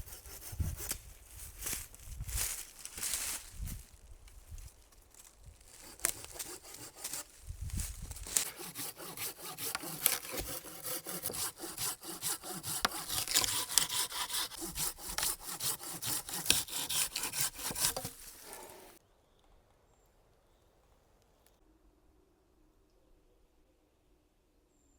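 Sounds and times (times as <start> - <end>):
hand saw cutting wood: 0.0 - 1.0, 5.7 - 7.3, 8.2 - 19.0.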